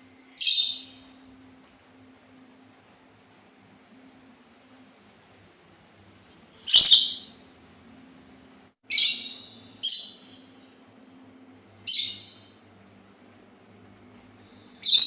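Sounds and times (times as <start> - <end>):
songbird short sharp calls: 6.6 - 7.4.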